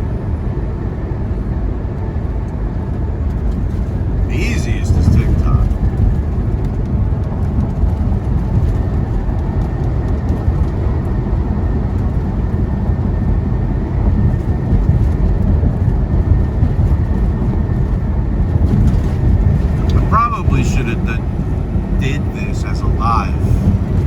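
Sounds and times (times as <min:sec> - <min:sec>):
diesel engine rumble: 0:00.0 - 0:24.0
road noise: 0:00.0 - 0:24.0
faint steady whine: 0:04.2 - 0:05.8, 0:19.6 - 0:24.0.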